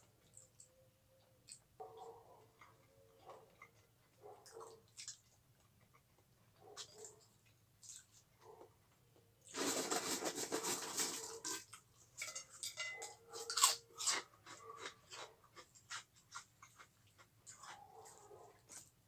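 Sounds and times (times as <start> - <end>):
chewing clicks and mouth smacks: 0.0 - 8.3, 13.4 - 19.0
crunching of crunchy food: 2.4 - 8.7, 9.4 - 19.0.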